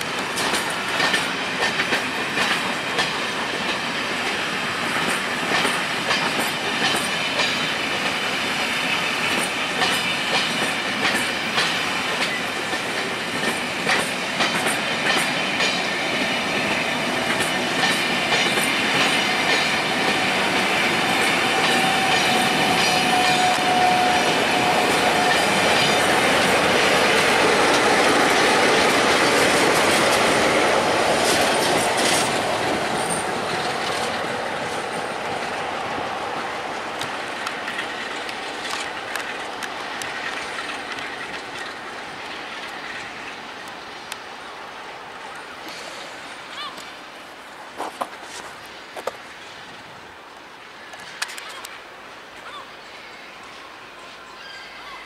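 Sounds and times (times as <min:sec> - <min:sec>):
train wheels clicking over rail joints: 0:00.0 - 0:44.3, 0:45.6 - 0:49.5.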